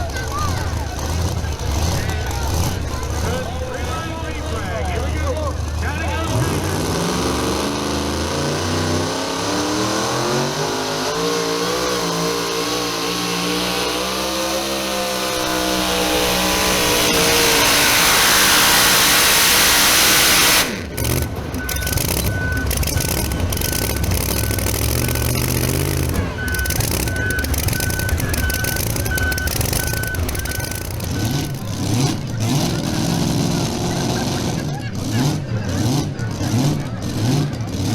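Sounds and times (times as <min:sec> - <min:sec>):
low engine rumble: 0:00.0 - 0:37.9
truck engine at full throttle: 0:00.0 - 0:37.9
reversing beeper: 0:09.7 - 0:31.7.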